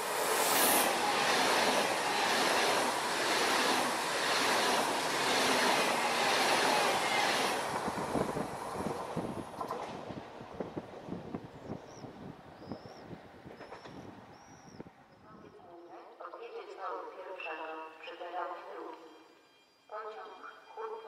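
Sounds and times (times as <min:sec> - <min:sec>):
train passing at speed: 0:00.0 - 0:15.4.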